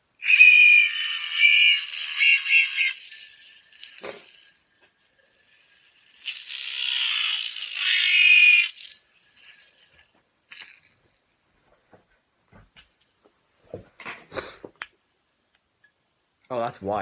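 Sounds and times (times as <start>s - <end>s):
yo-yo spinning with whirring rattle: 0.2s - 10.9s.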